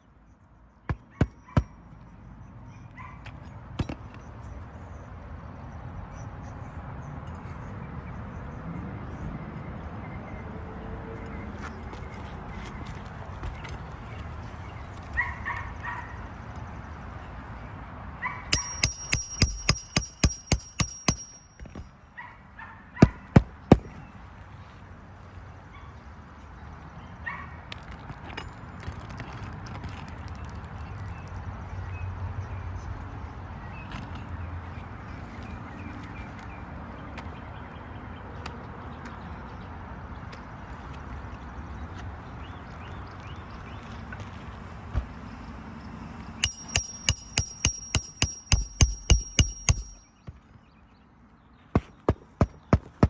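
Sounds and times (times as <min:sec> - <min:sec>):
hammer blows: 0:18.5 - 0:21.9, 0:46.4 - 0:50.2.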